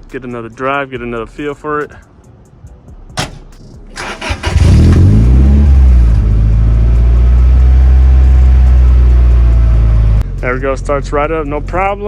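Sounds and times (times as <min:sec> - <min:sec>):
ignition click: 0:03.2 - 0:05.1
engine starting and idling: 0:03.2 - 0:06.4.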